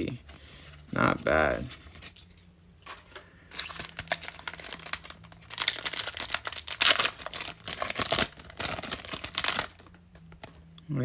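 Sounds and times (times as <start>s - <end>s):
foil wrapper tearing and crinkling: 3.5s - 9.9s.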